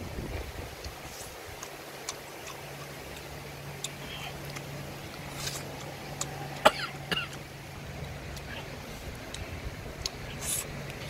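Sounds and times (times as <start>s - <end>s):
low hum: 0.0s - 11.0s
chewing and gnawing: 1.1s - 7.0s.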